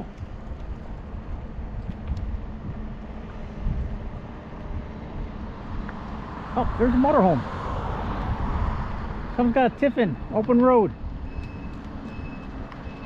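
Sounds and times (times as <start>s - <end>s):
wind buffeting microphone: 0.0s - 9.5s, 10.9s - 13.0s.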